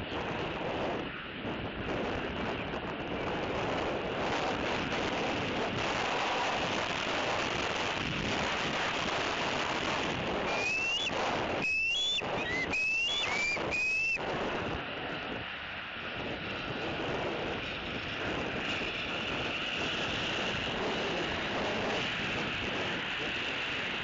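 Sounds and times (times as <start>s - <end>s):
wind buffeting microphone: 0.0s - 24.0s
eagle high whistled call: 10.4s - 14.2s.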